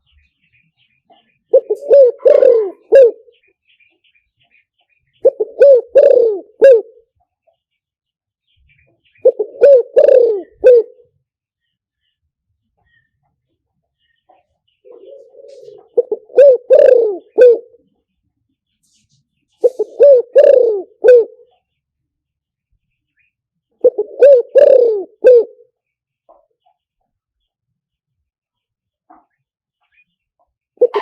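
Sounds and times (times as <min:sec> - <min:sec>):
dove cooing: 0:01.5 - 0:03.4, 0:05.2 - 0:07.1, 0:09.2 - 0:11.1, 0:14.8 - 0:17.8, 0:19.6 - 0:21.5, 0:23.8 - 0:25.7, 0:30.8 - 0:31.0.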